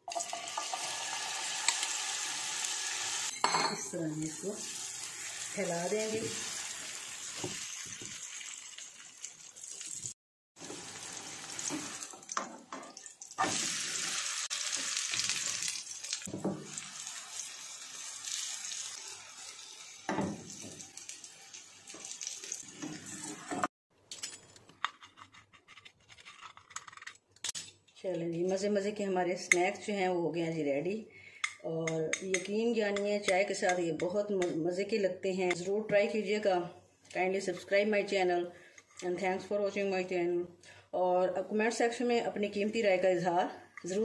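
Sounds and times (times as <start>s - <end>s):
batter sizzling in oil: 0.1s - 3.3s, 4.0s - 23.7s.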